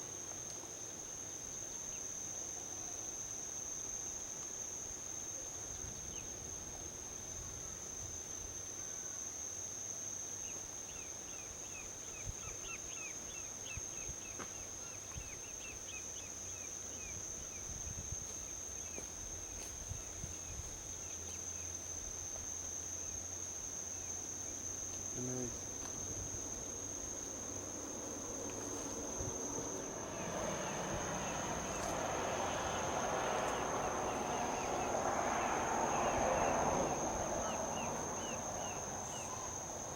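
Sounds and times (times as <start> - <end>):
high-pitched insect trill: 0.1 - 39.9
highway traffic rushing: 26.8 - 39.9.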